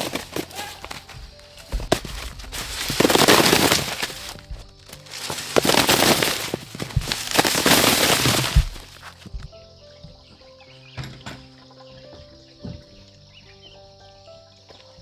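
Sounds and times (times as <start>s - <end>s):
husks snapping: 0.0s - 9.6s
dry corn husks rustling: 0.0s - 10.3s
soft background music: 0.0s - 15.0s.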